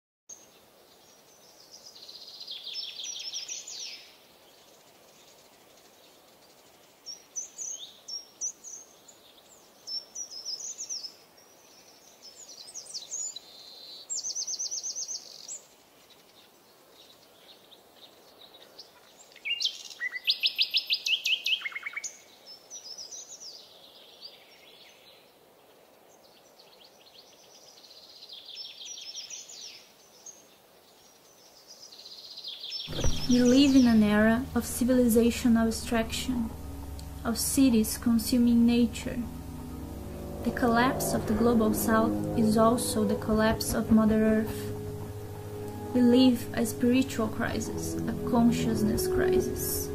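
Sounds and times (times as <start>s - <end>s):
faint steady background hiss: 22.1s - 49.9s.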